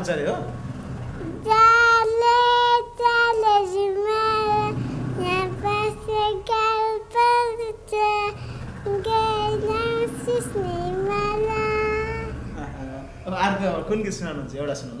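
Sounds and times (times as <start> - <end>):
boy singing unaccompanied: 1.4 - 12.6.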